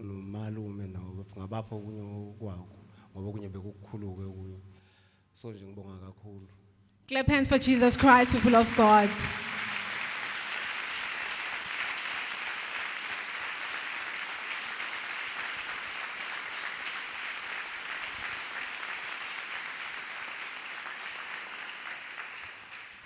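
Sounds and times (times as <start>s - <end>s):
congregation applauding: 7.8s - 23.0s.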